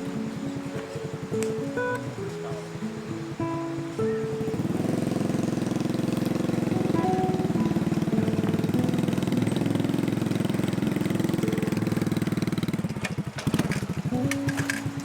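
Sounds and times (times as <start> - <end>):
motorcycle engine running: 0.0 - 15.0
sharp clicks: 0.6 - 2.4, 11.4 - 15.0.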